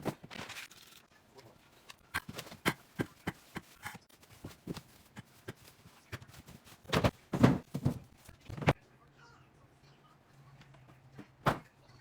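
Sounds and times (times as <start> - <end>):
containers being set down: 6.9 - 8.8.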